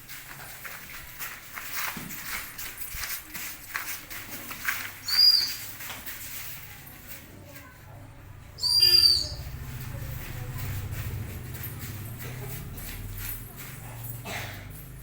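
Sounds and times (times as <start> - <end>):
feet shuffling and knocking: 0.0 - 8.4, 9.4 - 15.0
whistle blasts: 8.6 - 9.4.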